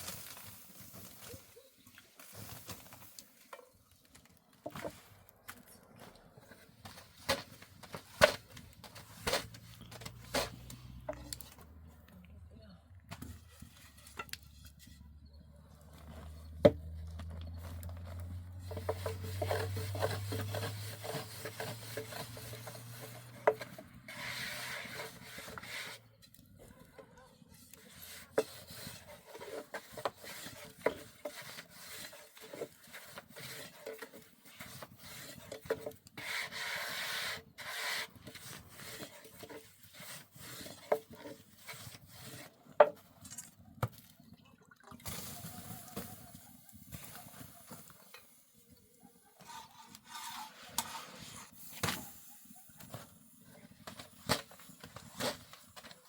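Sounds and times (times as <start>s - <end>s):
rubbing and scraping: 5.9s - 11.8s, 13.1s - 26.2s, 27.5s - 43.6s, 49.2s - 56.0s.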